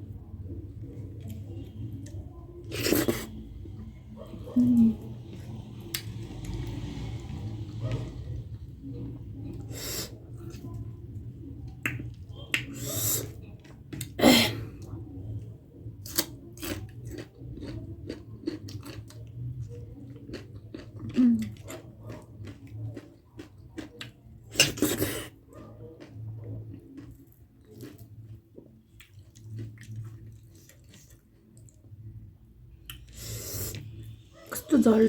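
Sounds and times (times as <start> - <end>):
chewing and wet mouth sounds: 0.0 - 34.7
lip smacks: 11.7 - 14.2.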